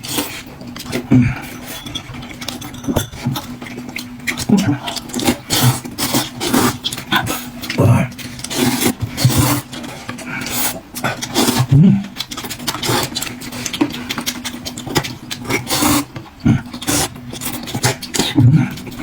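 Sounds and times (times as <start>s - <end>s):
person chewing: 0.0s - 19.0s
person slurping noodles: 4.4s - 9.7s, 10.3s - 11.8s, 15.4s - 17.1s.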